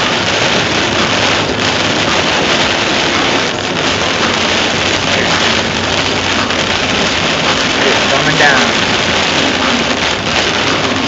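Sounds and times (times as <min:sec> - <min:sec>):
heavy rain on windshield and roof: 0:00.0 - 0:11.0
tyres hissing on wet road: 0:00.0 - 0:11.0.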